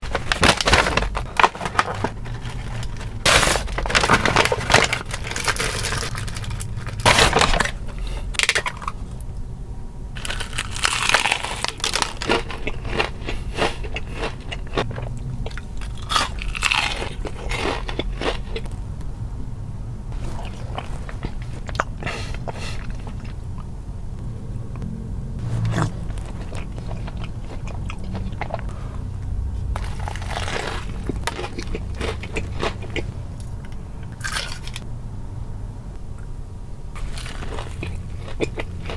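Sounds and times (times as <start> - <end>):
crunching fried chicken: 0.0 - 9.3, 10.2 - 18.8, 20.2 - 23.7, 25.4 - 34.9, 37.0 - 38.9
chewing: 10.2 - 18.8, 20.2 - 23.7, 24.7 - 34.8, 37.0 - 38.9.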